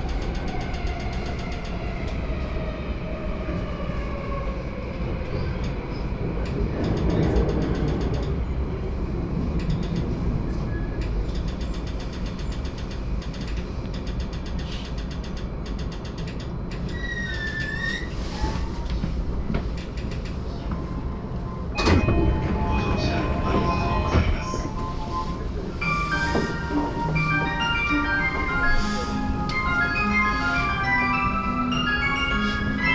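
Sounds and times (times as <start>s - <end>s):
train rumble: 0.0s - 32.9s
platform departure melody: 21.8s - 32.9s.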